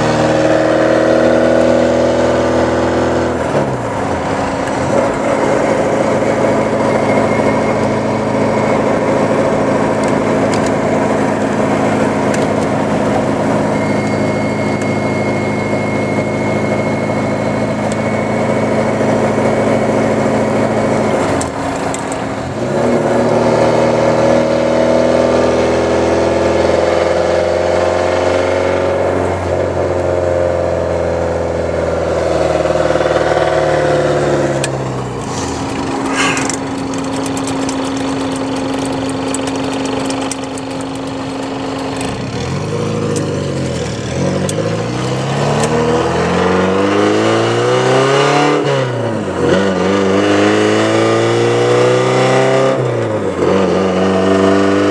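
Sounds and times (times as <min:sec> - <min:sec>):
car engine revving: 0:00.0 - 0:54.9.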